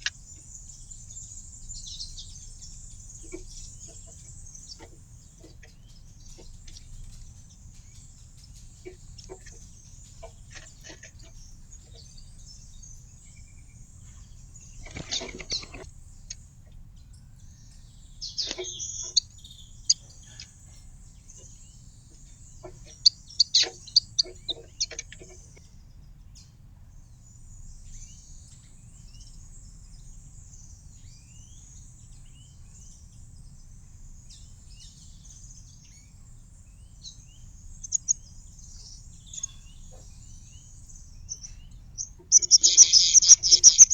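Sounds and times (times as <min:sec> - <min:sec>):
small birds chirping: 0:00.0 - 0:43.9
low background rumble: 0:35.9 - 0:43.9.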